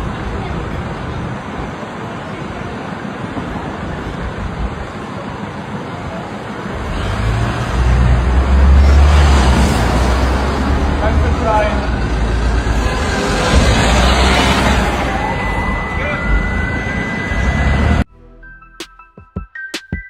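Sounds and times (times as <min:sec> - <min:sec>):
car road and engine noise: 0:00.0 - 0:18.1
deep rumble: 0:06.8 - 0:18.6.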